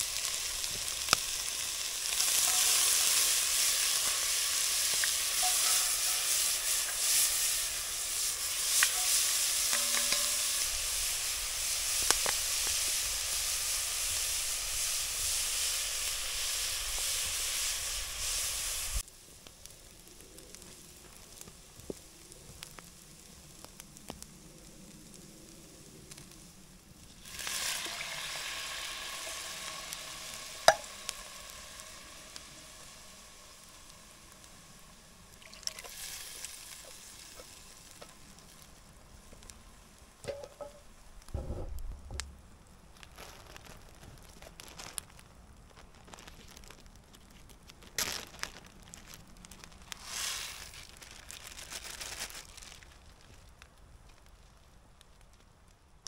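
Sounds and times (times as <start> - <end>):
food sizzling in a pan: 0.0 - 41.5, 49.7 - 52.6.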